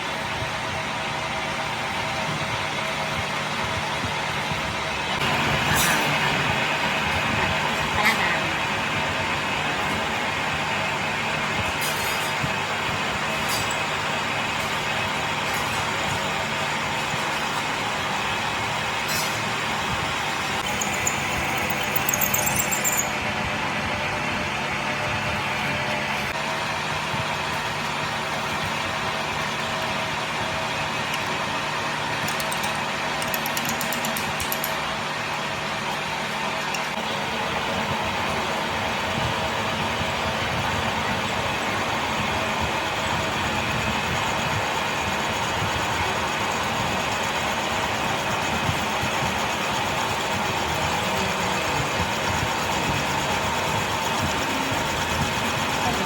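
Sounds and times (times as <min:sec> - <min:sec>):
workshop machine running: 0:00.0 - 0:56.0
machine humming: 0:20.2 - 0:26.2.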